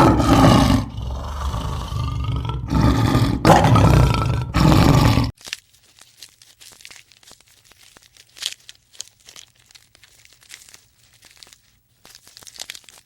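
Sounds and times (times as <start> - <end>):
soft crackling and rustling: 5.3 - 13.0.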